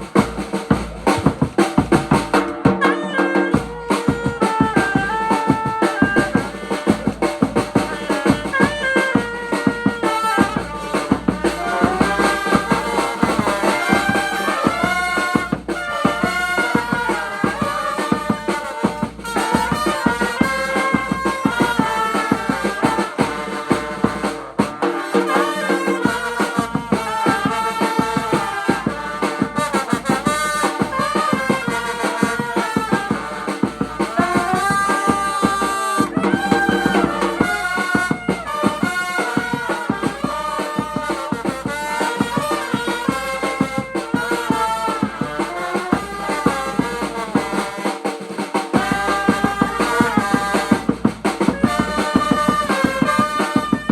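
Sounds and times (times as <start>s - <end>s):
busy drum beat: 0.0s - 53.9s
trumpets and trombones melody: 0.0s - 53.9s.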